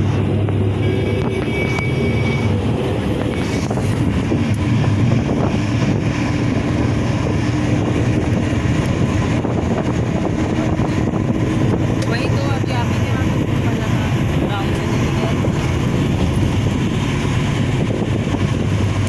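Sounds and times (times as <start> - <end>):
bus engine drone: 0.0 - 19.0
road noise: 0.0 - 19.0
wind on microphone: 0.0 - 19.0.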